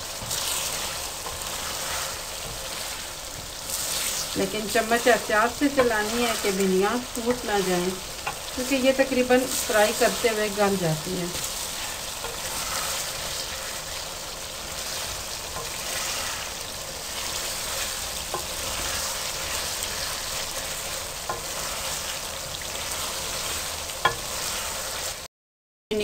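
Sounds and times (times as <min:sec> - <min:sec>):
food sizzling in oil: 0:00.0 - 0:25.3
spoon knocking against pan: 0:24.0 - 0:24.3.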